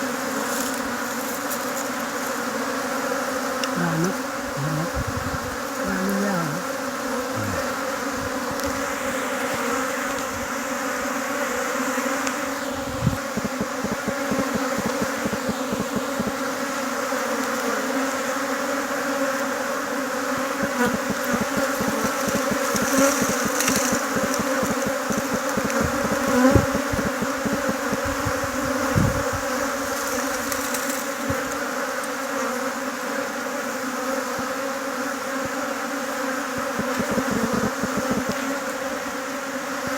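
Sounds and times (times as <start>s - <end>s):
honeybee colony buzzing: 0.0s - 39.9s
low bumps: 12.9s - 16.4s.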